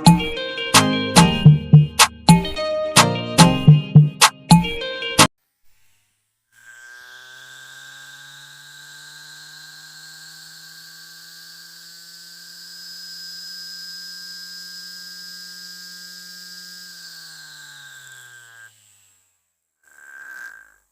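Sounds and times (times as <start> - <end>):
small motor humming and whining: 5.3 - 20.9.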